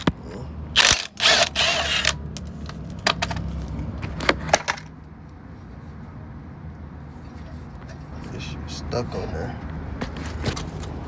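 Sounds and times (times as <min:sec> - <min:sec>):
rattling scrape: 0:00.8 - 0:04.9.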